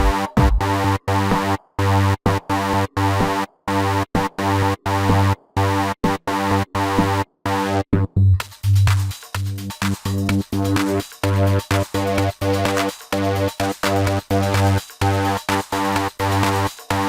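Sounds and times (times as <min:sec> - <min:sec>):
chopped buzzy synth stabs: 0:08.4 - 0:17.0.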